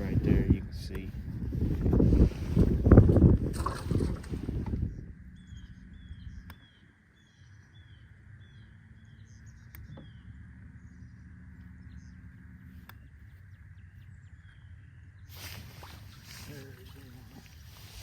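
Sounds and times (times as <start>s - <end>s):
faint low hum: 0.0s - 18.0s
light clicks: 9.6s - 10.1s.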